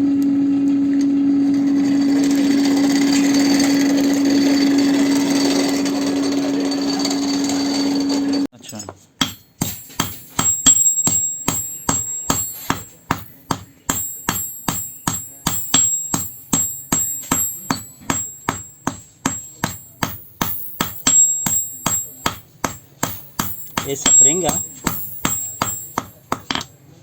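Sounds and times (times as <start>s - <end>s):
hammer striking steel spring: 9.2s - 26.7s.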